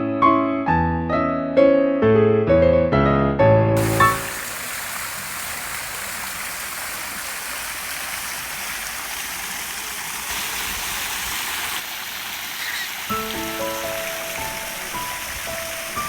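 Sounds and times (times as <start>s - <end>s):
fountain water splashing: 3.8s - 16.0s.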